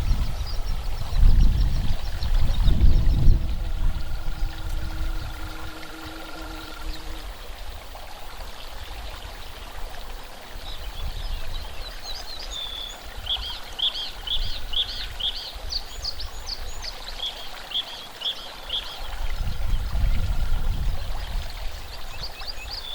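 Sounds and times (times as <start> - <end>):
small birds chirping: 0.0 - 7.3
steady hiss: 0.0 - 22.9.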